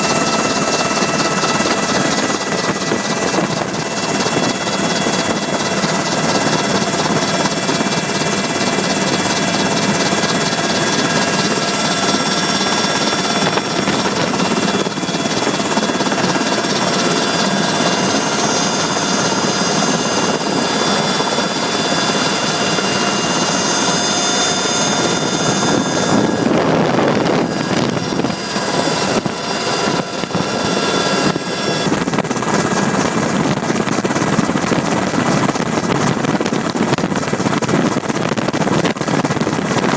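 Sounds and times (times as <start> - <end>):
constant engine whine: 0.0 - 39.9
helicopter engine and rotor: 0.0 - 39.9.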